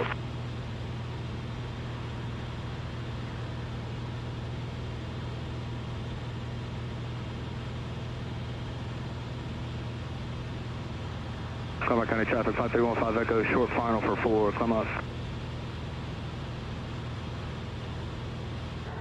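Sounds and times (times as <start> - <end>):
aircraft cabin drone: 0.0 - 19.0.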